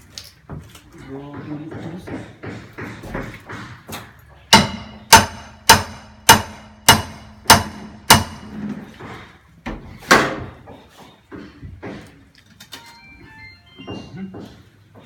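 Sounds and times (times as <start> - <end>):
sharp ringing knocks: 4.5 - 8.5.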